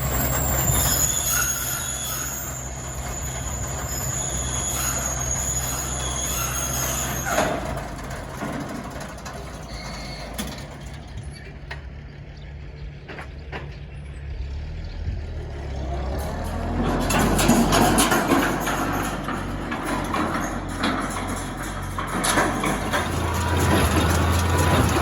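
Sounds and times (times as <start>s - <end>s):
high metallic squeal: 0.0s - 8.6s, 9.6s - 10.6s, 16.0s - 25.0s
tractor engine running: 0.0s - 25.0s.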